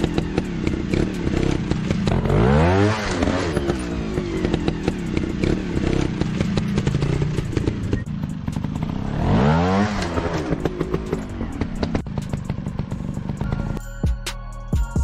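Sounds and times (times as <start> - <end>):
dirt bike engine revving: 0.0 - 13.8
sharp clicks and clattering: 9.8 - 13.8.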